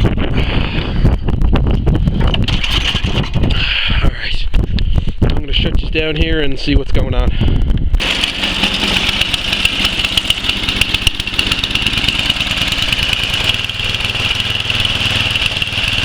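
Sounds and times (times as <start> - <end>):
snowblower engine running: 2.4 - 3.7, 8.0 - 16.0.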